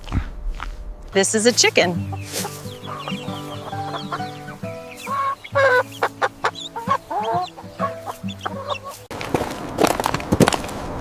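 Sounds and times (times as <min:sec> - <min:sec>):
background music with held notes: 0:01.2 - 0:09.1
chicken clucking: 0:02.0 - 0:09.1.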